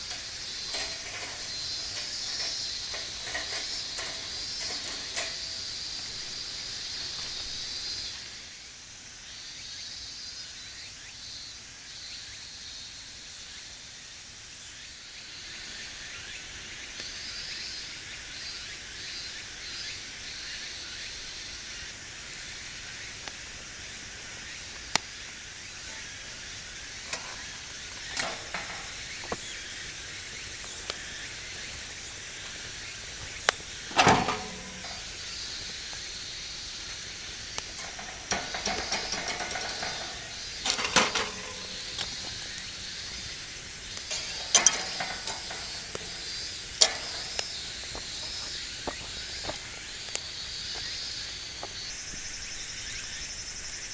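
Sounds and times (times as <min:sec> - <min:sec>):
wood fire crackling: 0:00.0 - 0:07.7, 0:25.8 - 0:29.5, 0:30.6 - 0:48.2.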